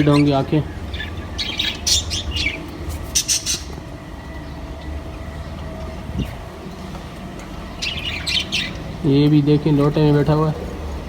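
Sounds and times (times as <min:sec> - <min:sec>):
parrots squawking: 0:00.0 - 0:03.8, 0:07.7 - 0:08.9
steady low rumble: 0:00.0 - 0:11.0.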